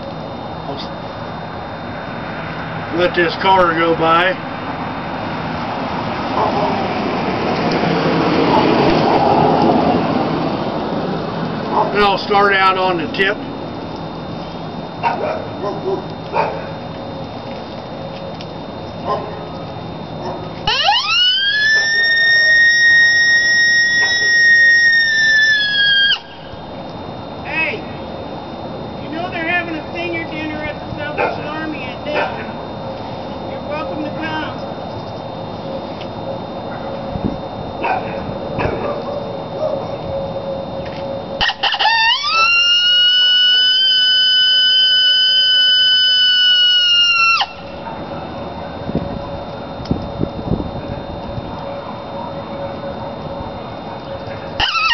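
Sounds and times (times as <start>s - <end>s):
steady background noise: 0.0s - 54.9s
coyote howler call: 20.1s - 26.5s, 41.4s - 49.4s, 54.4s - 54.9s
high-pitched horn howl: 41.4s - 47.8s, 54.6s - 54.9s.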